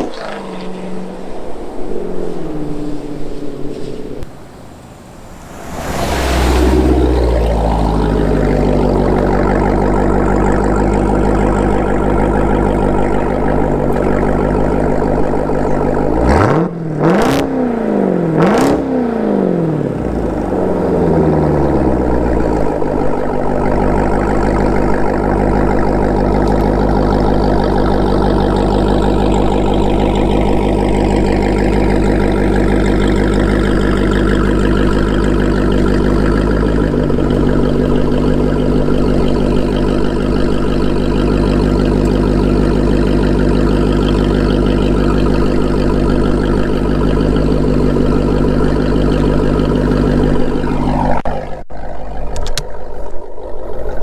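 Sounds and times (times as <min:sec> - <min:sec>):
exhaust cracks: 0:00.0 - 0:16.7, 0:19.7 - 0:54.0
car engine droning: 0:00.0 - 0:54.0
engine revving sharply: 0:02.8 - 0:24.1.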